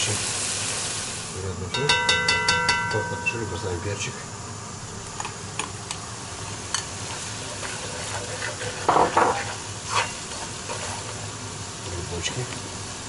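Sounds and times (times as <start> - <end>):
peppers sizzling in hot oil: 0.0 - 13.0
spatula scraping a pot: 7.1 - 11.3.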